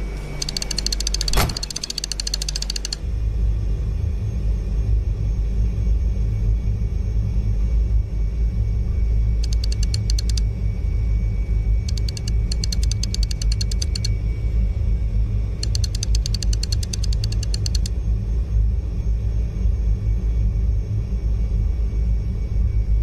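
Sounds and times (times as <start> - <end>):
steady low rumble: 0.0 - 23.0
rapid clicking: 0.3 - 3.0, 9.4 - 10.4, 11.9 - 14.1, 15.6 - 17.9.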